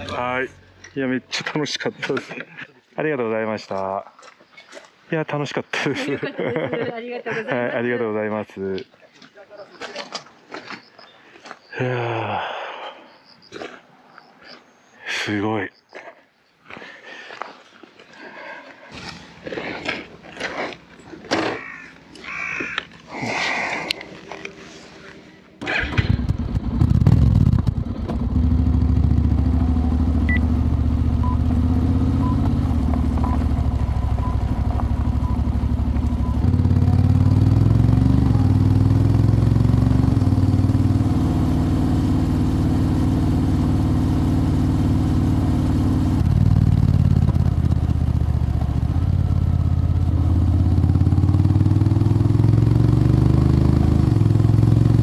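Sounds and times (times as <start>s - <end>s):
motorcycle engine running: 25.8s - 55.0s.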